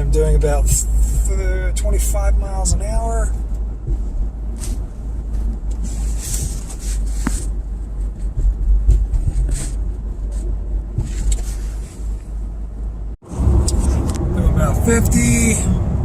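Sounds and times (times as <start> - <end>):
car engine rumble from inside: 0.0 - 16.0
road noise: 0.0 - 16.0.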